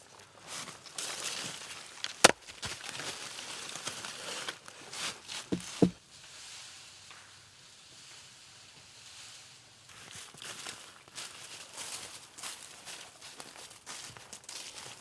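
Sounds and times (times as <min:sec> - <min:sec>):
sticks and bark rustling: 0:00.5 - 0:06.0
wood knocks: 0:05.5 - 0:06.0.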